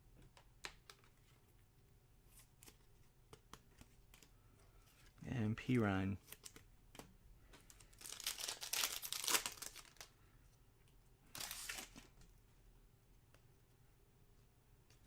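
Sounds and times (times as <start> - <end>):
plastic wrapper crinkling and tearing: 7.7 - 10.1.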